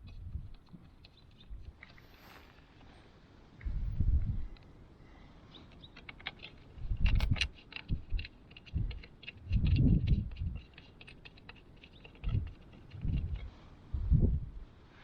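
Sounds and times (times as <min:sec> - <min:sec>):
wind buffeting microphone: 0:03.6 - 0:04.6, 0:06.8 - 0:10.6, 0:12.2 - 0:14.7.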